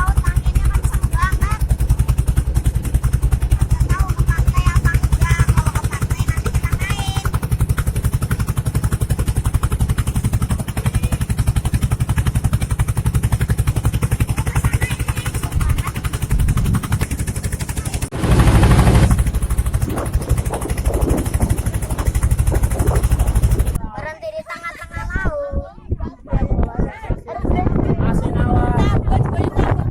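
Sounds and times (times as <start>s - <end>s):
boat engine puttering: 0.0s - 23.8s
loud rushing noise: 18.1s - 23.8s.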